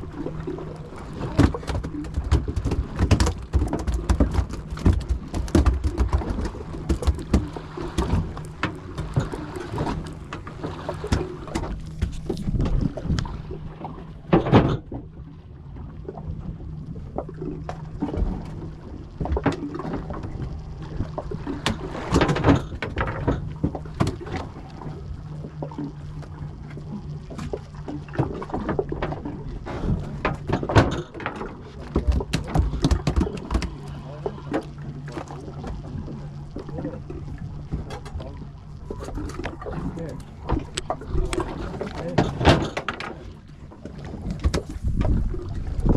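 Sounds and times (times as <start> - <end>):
boat engine humming: 0.0 - 45.9
wind and water noise: 0.0 - 45.9
knocks and clatter on board: 1.2 - 13.1, 14.3 - 15.1, 19.2 - 20.4, 21.6 - 24.5, 29.8 - 33.9, 40.2 - 43.3, 43.9 - 45.9.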